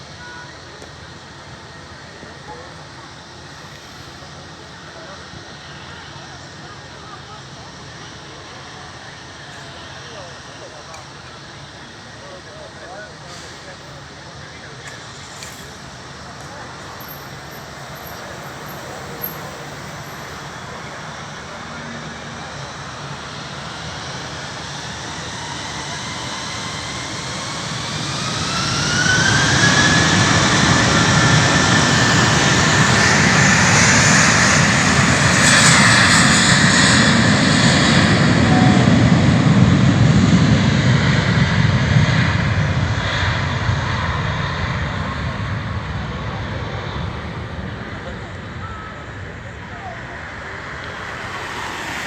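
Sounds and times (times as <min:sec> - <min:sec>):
jet engine whine rising: 0:00.0 - 0:52.0
loud jet roar: 0:14.8 - 0:52.0.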